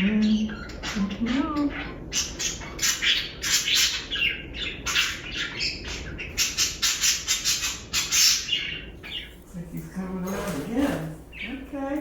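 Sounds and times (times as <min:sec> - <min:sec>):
budgerigars chirping and squawking: 0:00.0 - 0:12.0.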